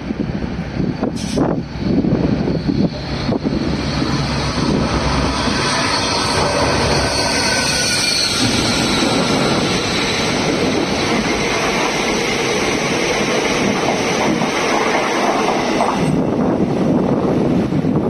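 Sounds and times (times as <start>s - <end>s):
freight train wheels clattering: 2.6s - 17.0s.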